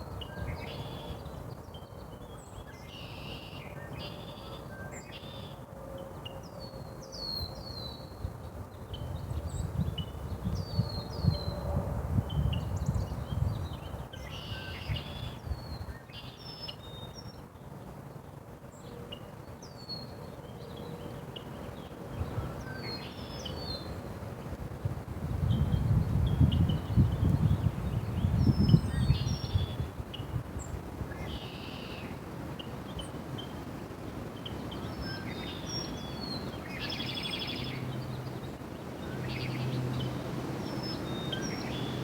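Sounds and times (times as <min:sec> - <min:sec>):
low rumbling noise on microphone: 0:09.0 - 0:14.2, 0:23.9 - 0:31.2.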